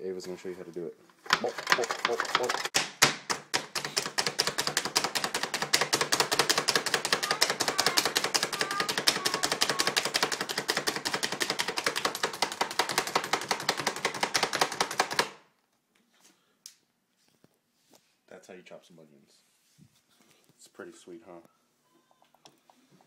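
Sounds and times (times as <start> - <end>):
plunger food chopper clacking: 1.3 - 13.4.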